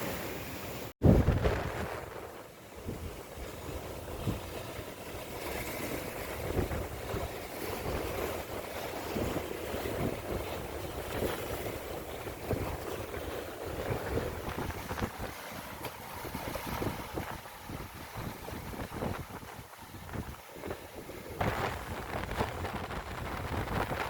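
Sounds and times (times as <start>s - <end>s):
rough sea rushing: 0.0s - 24.0s
wind buffeting microphone: 1.0s - 24.0s.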